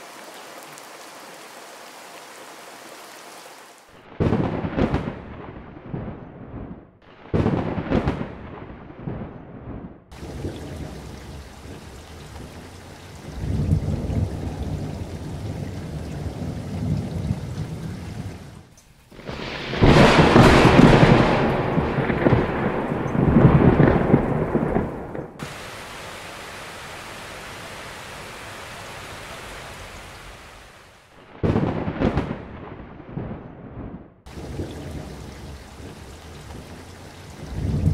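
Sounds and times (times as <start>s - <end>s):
heavy rain pouring: 0.0s - 5.0s, 10.1s - 32.2s, 34.3s - 37.9s
deep rumbling: 33.2s - 37.9s.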